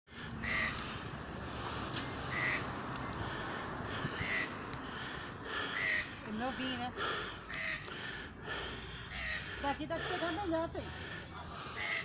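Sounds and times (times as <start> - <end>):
bird giving harsh call: 0.4 - 1.2, 2.2 - 2.7, 4.1 - 8.0, 8.6 - 10.4, 11.6 - 12.0.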